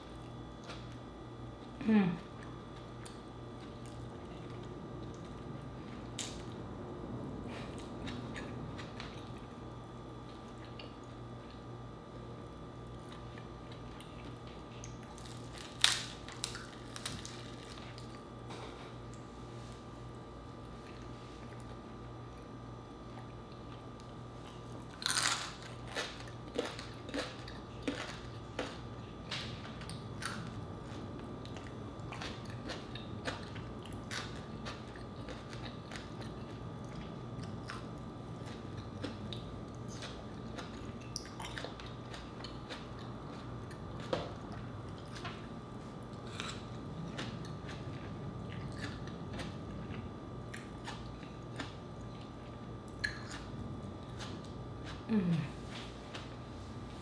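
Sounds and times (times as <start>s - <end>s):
crunchy food being chewed: 7.5s - 56.9s.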